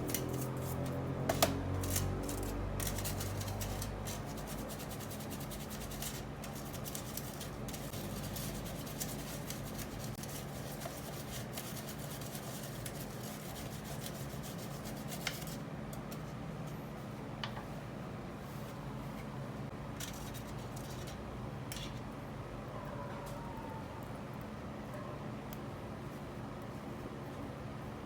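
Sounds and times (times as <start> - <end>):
rapid scraping and scrubbing: 0.0 - 15.6.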